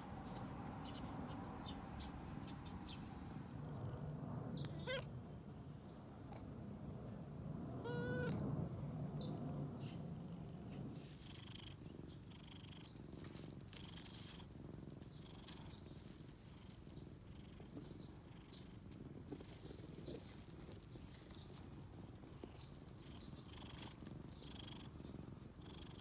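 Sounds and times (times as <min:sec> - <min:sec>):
cat meowing: 0:04.7 - 0:05.1, 0:07.8 - 0:08.4
cat purring: 0:09.3 - 0:26.0
faint clicks and rustles: 0:10.7 - 0:26.0.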